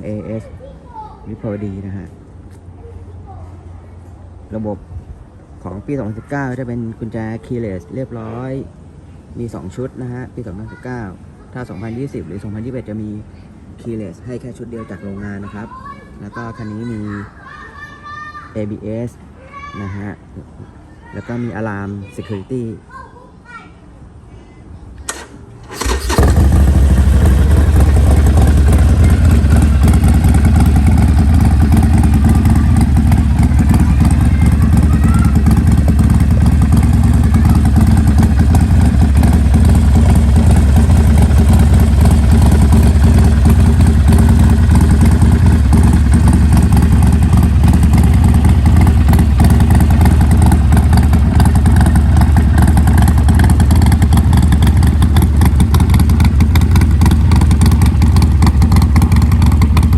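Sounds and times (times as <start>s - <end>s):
motorcycle engine idling: 25.1s - 59.9s.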